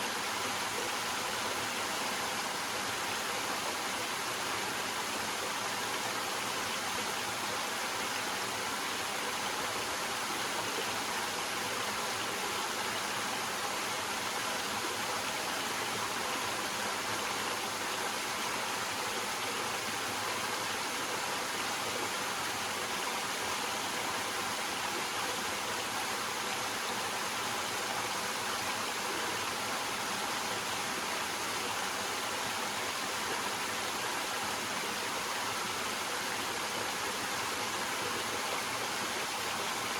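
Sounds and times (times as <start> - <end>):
waterfall splashing over rocks: 0.0 - 39.9.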